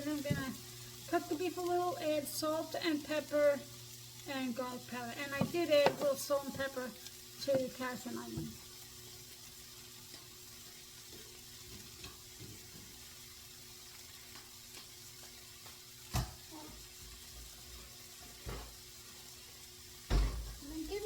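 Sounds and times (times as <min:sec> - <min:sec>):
vegetables sizzling in a pan: 0:00.0 - 0:21.0.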